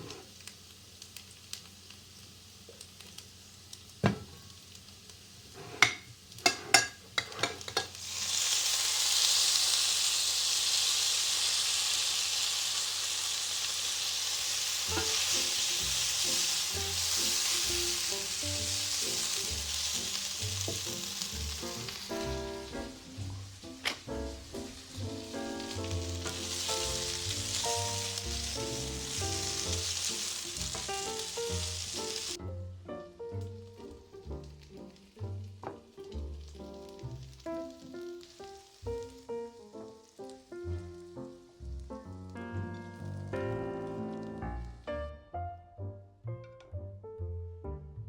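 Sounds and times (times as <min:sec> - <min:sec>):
steady hiss: 0:00.0 - 0:07.0, 0:07.6 - 0:32.4
soft music: 0:14.8 - 0:48.0.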